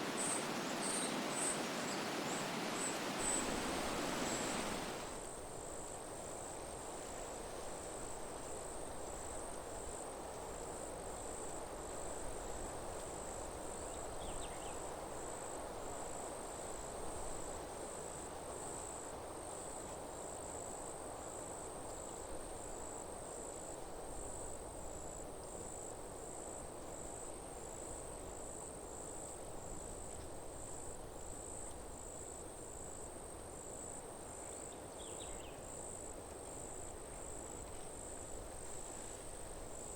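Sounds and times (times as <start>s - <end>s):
cricket chirping: 0.0s - 5.2s, 22.6s - 39.9s
wind in trees: 0.0s - 19.5s, 23.8s - 39.9s.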